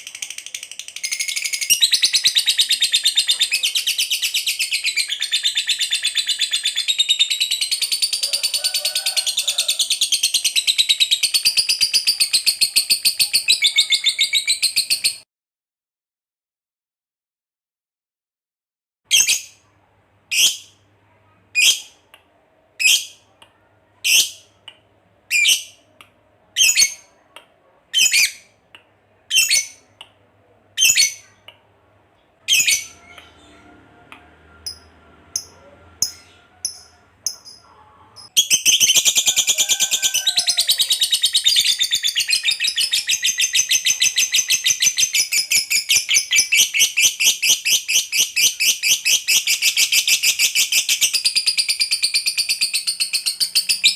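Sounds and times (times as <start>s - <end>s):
lovebird chattering trill: 34.6s - 53.9s.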